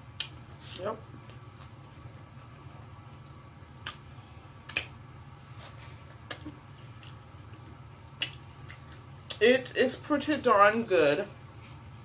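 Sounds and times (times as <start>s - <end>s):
steady low hum: 0.0s - 12.0s
crunchy chewing mouth clicks: 3.8s - 5.0s.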